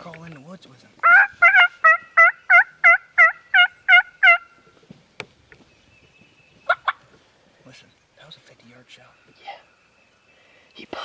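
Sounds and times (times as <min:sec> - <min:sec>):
turkey yelps: 0:01.0 - 0:04.6, 0:06.7 - 0:07.0.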